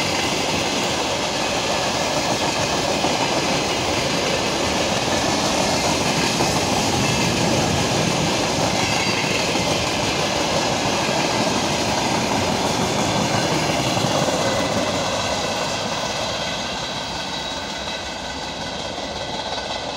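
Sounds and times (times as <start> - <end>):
freight train wheels on rails: 0.0 - 19.9.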